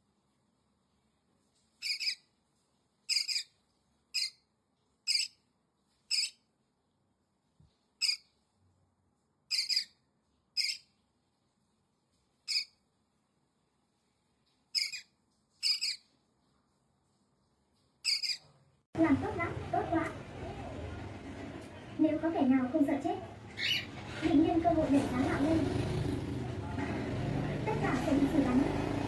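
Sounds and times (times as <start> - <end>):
parrot calling: 1.8 - 2.2, 3.1 - 4.4, 5.1 - 5.4, 6.1 - 6.4, 8.0 - 8.3, 9.5 - 10.0, 10.6 - 10.9, 12.5 - 12.8, 14.7 - 16.1, 18.0 - 18.5, 23.4 - 24.2.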